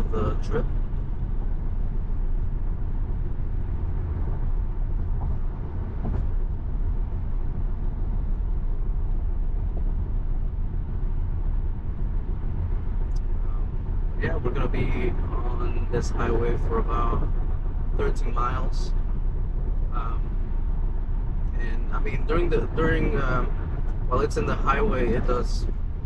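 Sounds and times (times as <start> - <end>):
road and tyre rumble in car cabin: 0.0 - 26.0.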